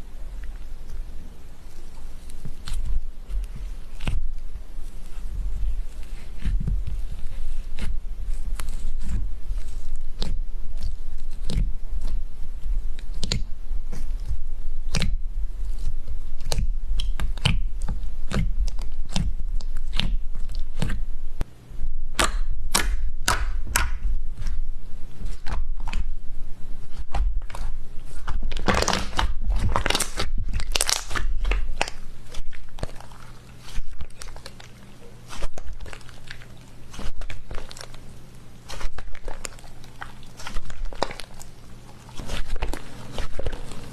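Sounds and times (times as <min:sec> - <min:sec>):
slime clicking and popping: 0:13.0 - 0:13.5, 0:14.9 - 0:15.2, 0:16.4 - 0:21.0, 0:22.1 - 0:24.0, 0:28.5 - 0:34.7.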